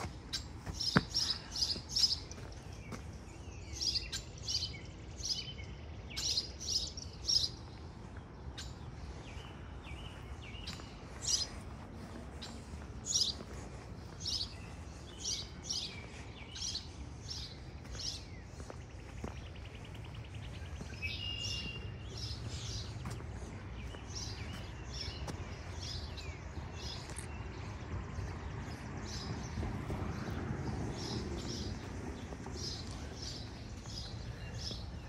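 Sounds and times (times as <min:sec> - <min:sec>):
songbirds chirping: 0:00.0 - 0:35.0
steady low rumble: 0:21.8 - 0:35.0.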